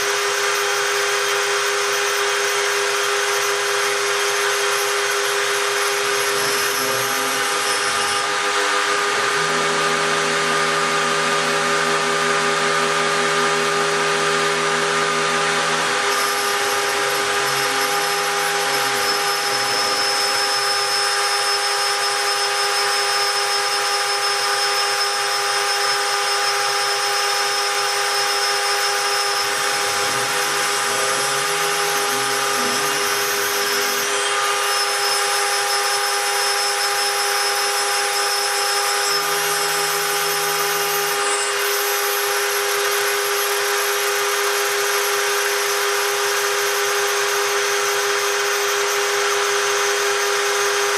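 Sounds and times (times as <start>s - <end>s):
milling spindle high whine: 0.0s - 50.9s
lower tone shifting pitch: 8.3s - 20.8s.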